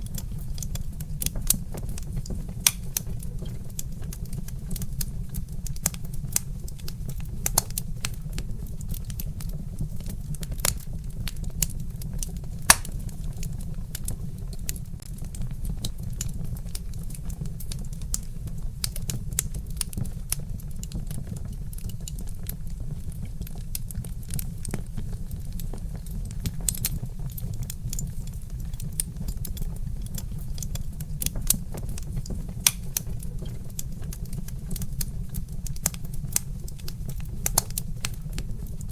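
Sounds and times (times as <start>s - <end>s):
steady low rumble: 0.0s - 38.9s
wood fire crackling: 0.0s - 38.9s
loud fire pop: 12.7s - 13.0s.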